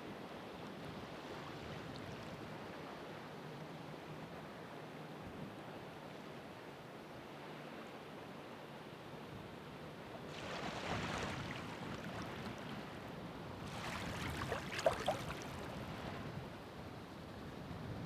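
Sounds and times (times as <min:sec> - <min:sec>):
water splashes: 0:10.3 - 0:13.0, 0:13.6 - 0:16.2.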